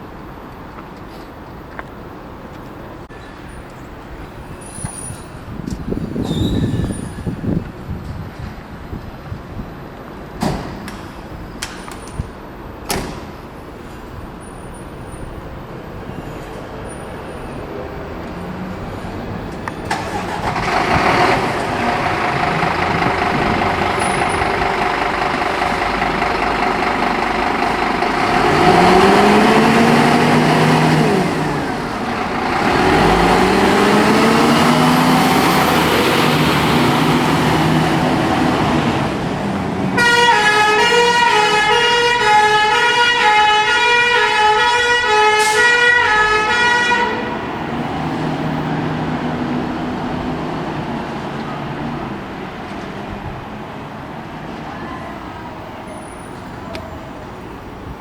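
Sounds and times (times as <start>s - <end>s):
diesel engine running: 18.6s - 42.7s, 46.0s - 54.4s.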